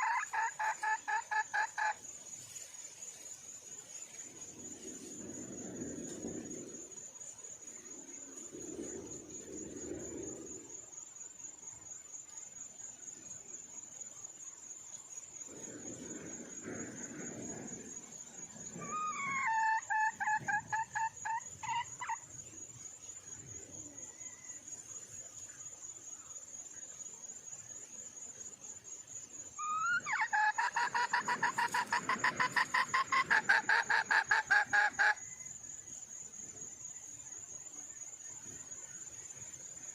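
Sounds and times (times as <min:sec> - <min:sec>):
hen clucking: 0:00.0 - 0:02.0, 0:29.8 - 0:35.2.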